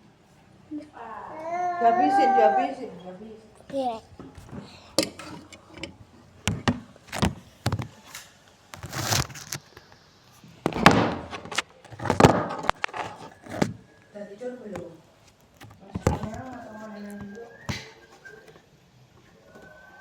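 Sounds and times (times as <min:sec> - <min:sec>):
short scraping or crunching: 0:08.8 - 0:09.6.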